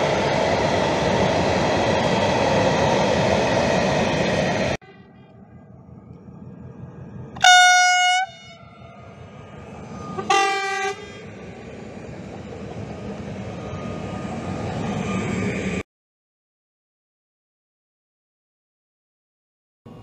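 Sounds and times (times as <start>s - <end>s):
train wheels rumbling on rails: 0.0s - 15.8s
train horn blasts: 7.4s - 9.2s, 10.1s - 11.3s.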